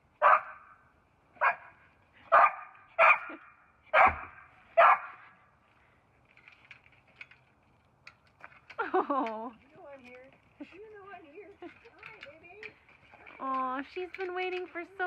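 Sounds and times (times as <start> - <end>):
dog barking: 0.2 - 0.7, 1.4 - 5.3
faint small noises: 0.9 - 15.0.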